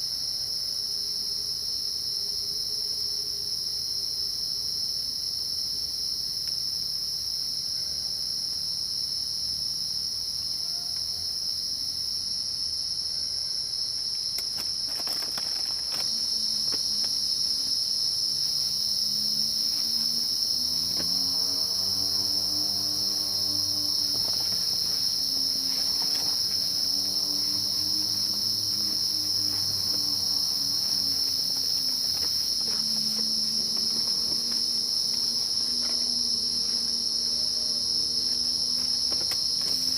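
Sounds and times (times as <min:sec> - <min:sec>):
high-pitched insect chorus: 0:00.0 - 0:39.9
low wavering humming: 0:15.2 - 0:39.9.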